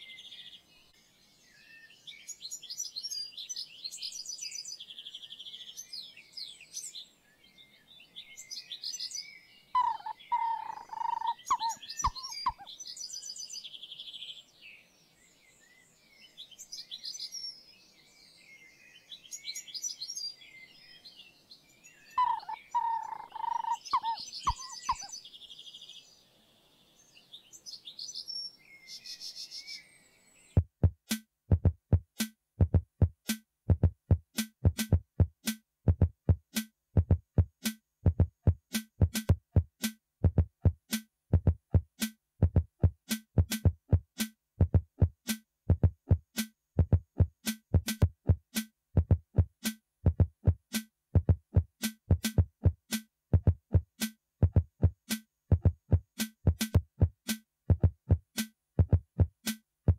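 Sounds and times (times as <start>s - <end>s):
birds chirping and singing: 0.0s - 14.5s, 15.2s - 26.2s
louder lower bird call: 22.2s - 25.1s.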